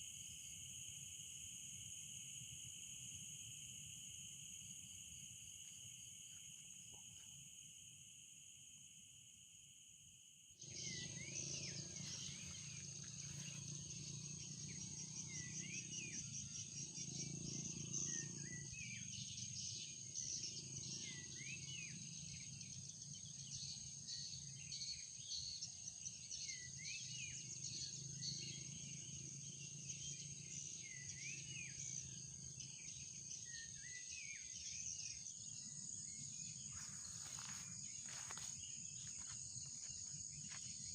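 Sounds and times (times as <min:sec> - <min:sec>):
insects shrilling: 0:36.6 - 0:40.0.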